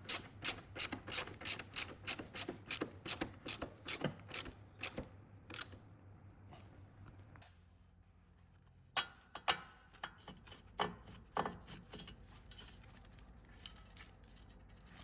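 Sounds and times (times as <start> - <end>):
ratchet wrench clicking: 0.0 - 5.8.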